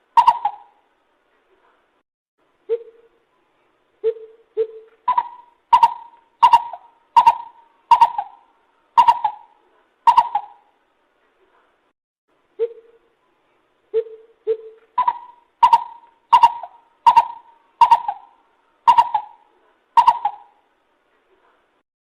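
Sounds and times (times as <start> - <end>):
coucal calling: 0.0 - 0.8, 4.0 - 10.8, 13.9 - 20.7.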